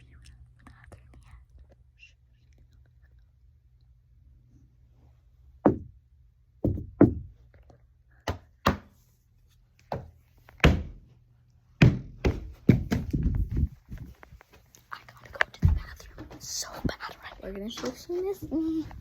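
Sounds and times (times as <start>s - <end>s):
sharp knocks and thuds: 5.6s - 6.0s, 6.6s - 7.4s, 9.9s - 11.0s, 11.8s - 13.8s, 15.6s - 16.5s.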